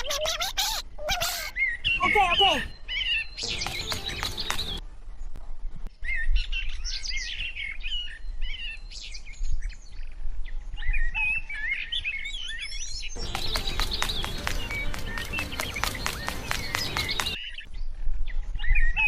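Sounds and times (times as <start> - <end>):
small birds chirping: 0.6 - 4.8, 11.6 - 17.7.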